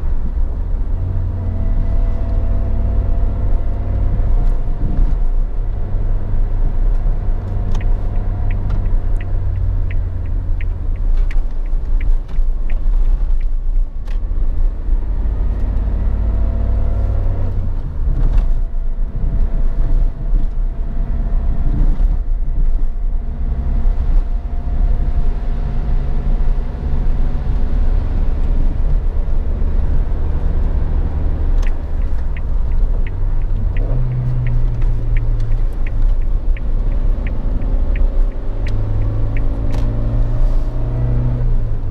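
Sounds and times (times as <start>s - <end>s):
car engine rumbling: 0.0s - 41.9s
light ticks: 6.7s - 14.7s, 30.0s - 40.7s.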